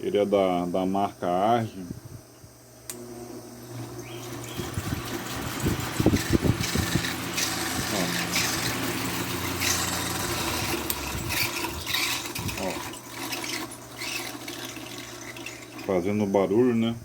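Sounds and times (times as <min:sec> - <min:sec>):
electric fan motor humming: 0:00.0 - 0:17.0
fan clicks: 0:02.8 - 0:03.0, 0:03.8 - 0:13.0.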